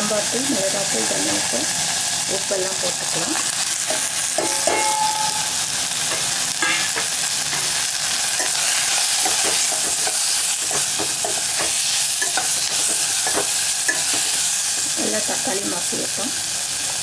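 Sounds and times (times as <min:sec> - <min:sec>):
food sizzling in hot oil: 0:00.0 - 0:17.0
metal spoon clinking against pot: 0:03.9 - 0:05.5, 0:06.1 - 0:07.7, 0:08.4 - 0:14.4.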